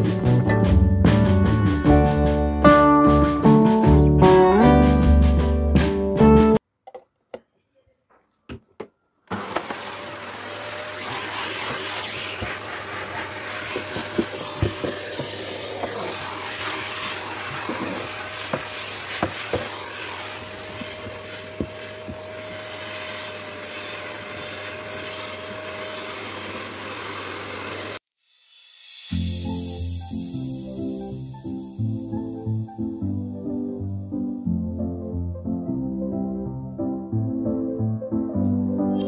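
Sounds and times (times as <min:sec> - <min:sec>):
vacuum cleaner whine: 0:09.3 - 0:28.0
nozzle knocking on surfaces: 0:13.7 - 0:16.0.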